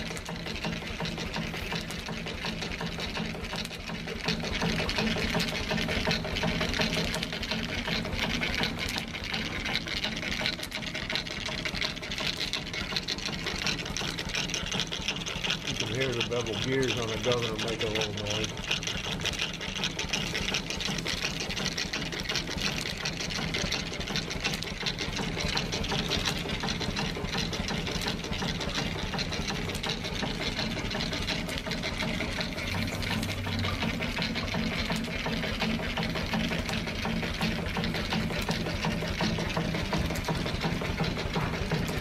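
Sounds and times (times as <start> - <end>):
steam engine clattering: 0.0 - 42.0
governor gears whirring: 28.6 - 42.0.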